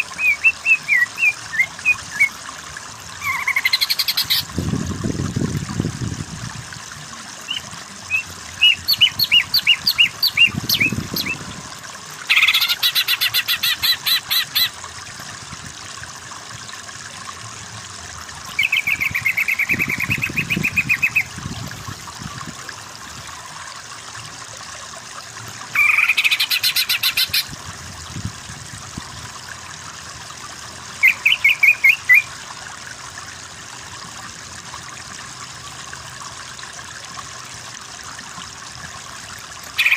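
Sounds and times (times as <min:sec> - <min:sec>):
trickling water: 0:00.0 - 0:39.9
songbird trilling: 0:03.2 - 0:04.4, 0:07.5 - 0:11.4, 0:12.3 - 0:14.7, 0:18.6 - 0:21.3, 0:31.0 - 0:32.3.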